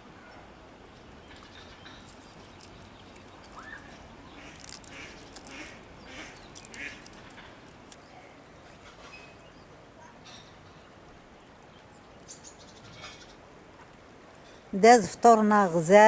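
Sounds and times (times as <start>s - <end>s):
ducks quacking: 4.4s - 7.3s.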